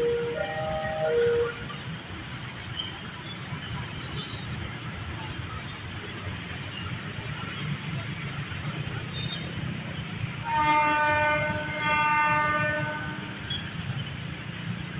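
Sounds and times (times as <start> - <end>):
train horn blasts: 0.0 - 1.8, 10.4 - 13.8.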